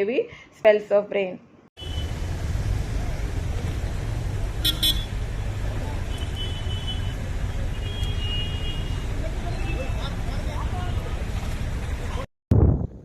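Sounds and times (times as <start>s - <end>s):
vehicle horns honking: 1.8s - 2.2s, 4.6s - 5.2s, 6.0s - 10.0s
road traffic: 1.8s - 12.3s.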